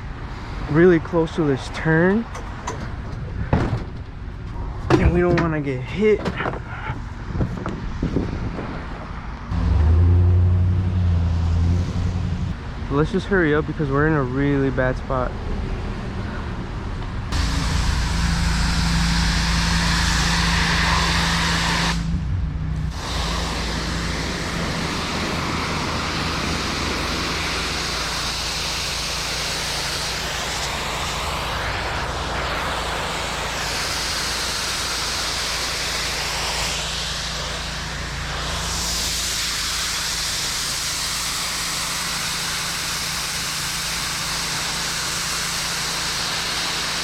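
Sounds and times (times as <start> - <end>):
high-pressure water spray hissing: 17.3 - 22.2, 22.8 - 47.0
pressure washer engine running: 17.3 - 22.2, 22.8 - 47.0.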